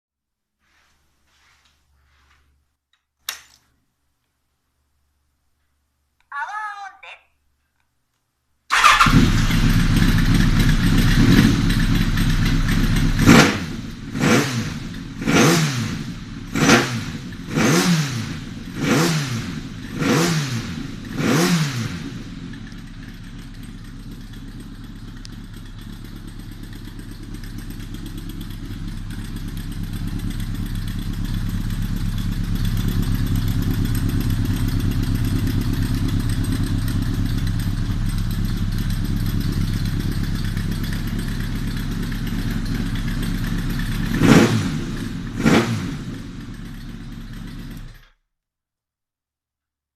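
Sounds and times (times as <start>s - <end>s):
motorcycle engine idling and revving: 8.7s - 48.2s.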